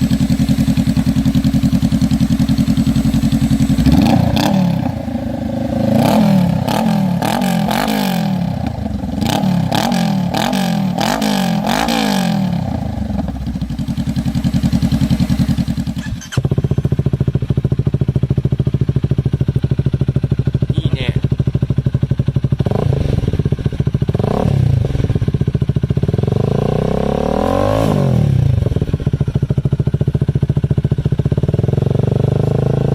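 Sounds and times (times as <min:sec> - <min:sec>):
motorcycle idling and revving: 0:00.0 - 0:32.9.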